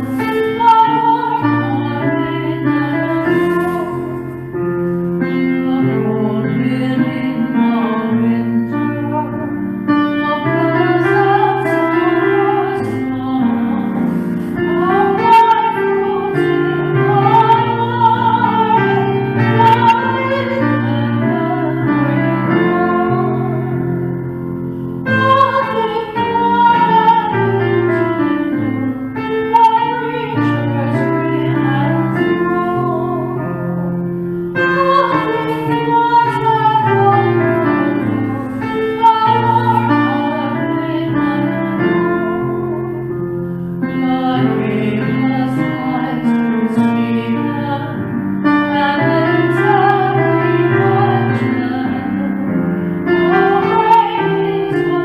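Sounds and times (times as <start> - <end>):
piano accompaniment: 0.0 - 55.0
woman singing slow song: 0.0 - 55.0.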